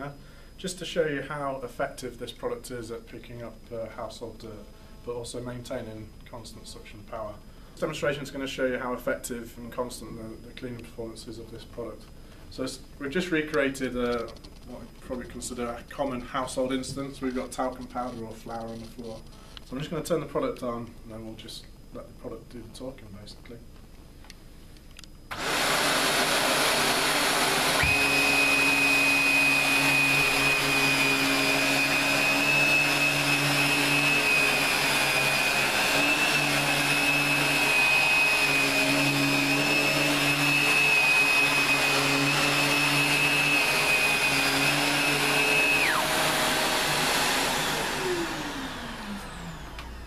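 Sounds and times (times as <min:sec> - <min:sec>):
high vacuum whine: 0:24.9 - 0:50.0
vacuum cleaner running: 0:25.3 - 0:50.0
vacuum motor winding down: 0:25.3 - 0:50.0.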